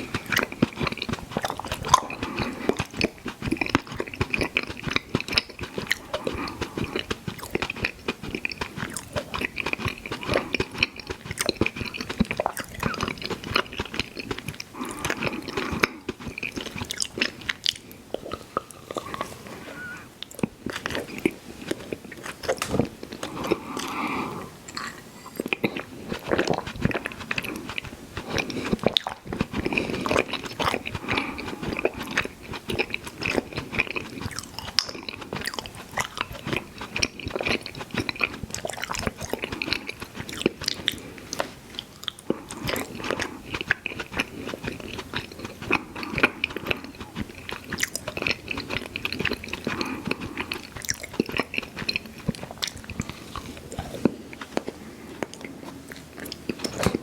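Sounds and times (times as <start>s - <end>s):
chewing and mouth smacking: 0.0s - 19.4s, 20.2s - 57.0s.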